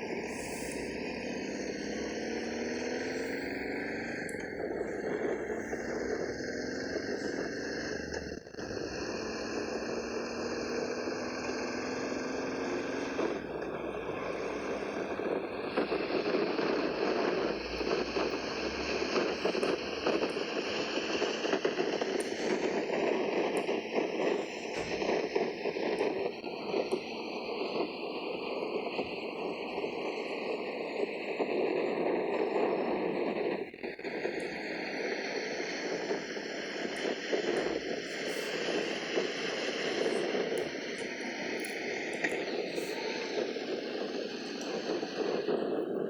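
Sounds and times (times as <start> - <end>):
road noise: 0.0 - 25.4
motorcycle engine running: 0.2 - 15.9.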